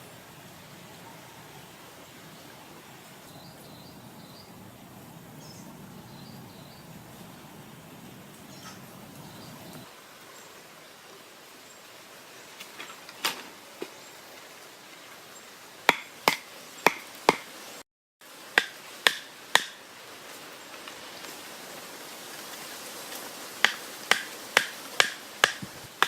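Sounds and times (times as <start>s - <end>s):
low steady hiss: 0.0s - 26.0s.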